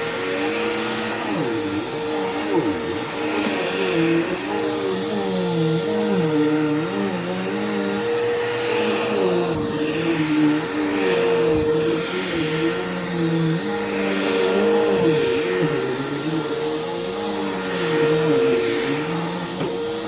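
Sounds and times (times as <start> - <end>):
vacuum cleaner running on carpet: 0.0 - 20.0.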